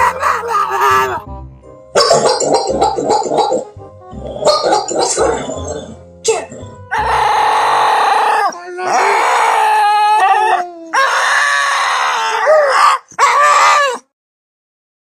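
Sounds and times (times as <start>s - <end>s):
dog howling: 6.9s - 14.1s.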